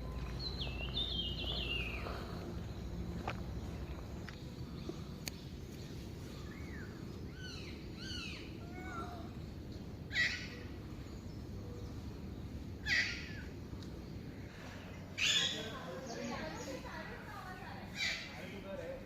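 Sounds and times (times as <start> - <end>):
low background noise: 0.0 - 19.0
loud harsh bird call: 12.8 - 13.5, 14.5 - 15.8.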